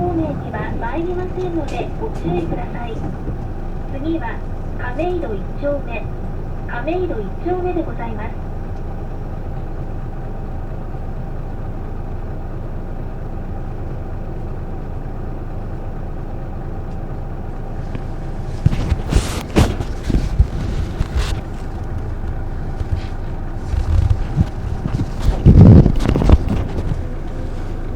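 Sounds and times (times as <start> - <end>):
loud irregular thumps and rattles: 0.0 - 4.0, 17.8 - 27.7
bus diesel engine hum: 0.0 - 27.9.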